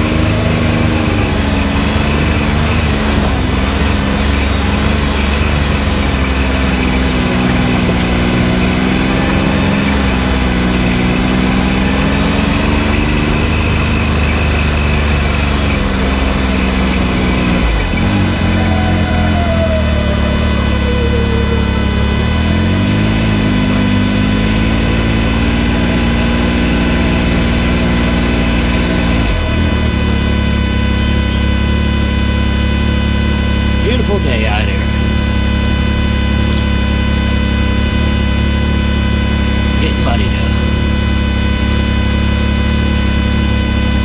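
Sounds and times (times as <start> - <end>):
vehicle engine running: 0.0 - 44.0.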